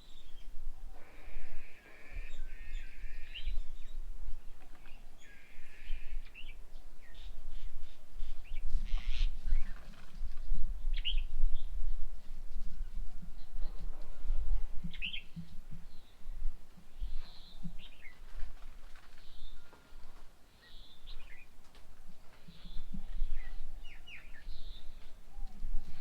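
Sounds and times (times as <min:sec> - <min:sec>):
birds calling: 0:00.0 - 0:10.0.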